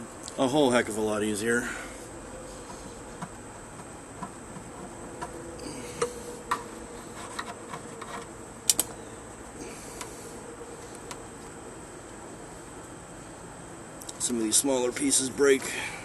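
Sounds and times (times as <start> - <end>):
brittle vinyl cracking and snapping: 7.3 - 9.0.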